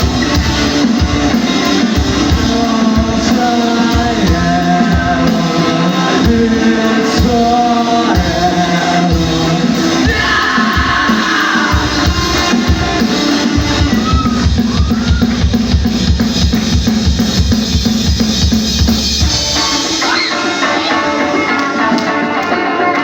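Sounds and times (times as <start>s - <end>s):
fast bass drum beats: 0.0s - 22.0s
rock band playing live: 0.0s - 23.0s.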